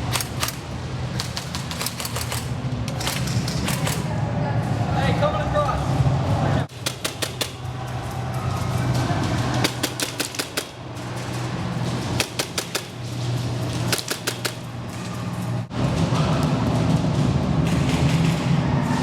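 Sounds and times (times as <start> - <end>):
steady low hum: 0.0 - 19.0
airsoft gunfire bursts: 6.7 - 7.7, 9.6 - 10.9, 12.2 - 13.1, 13.8 - 14.7.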